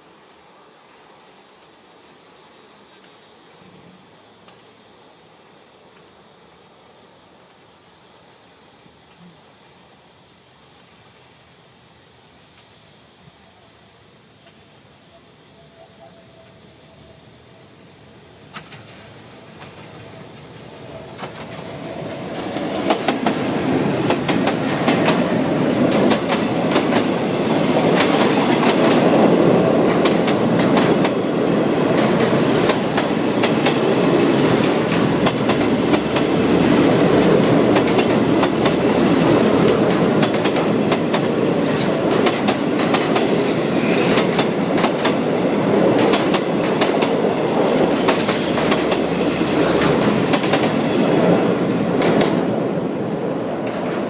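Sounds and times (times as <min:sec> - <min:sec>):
train wheels clacking over rail joints: 0:18.5 - 0:52.5, 0:53.6 - 0:54.0.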